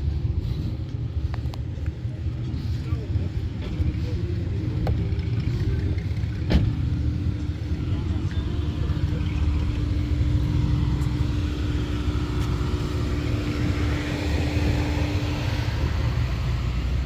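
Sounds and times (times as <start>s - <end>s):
car engine rumble: 0.0s - 17.0s.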